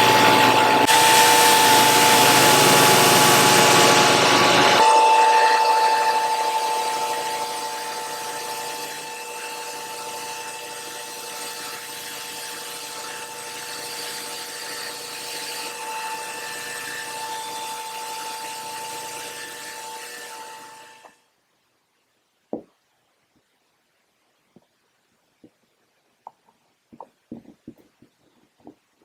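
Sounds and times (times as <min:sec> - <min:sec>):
power tool motor whining: 0:00.0 - 0:14.3.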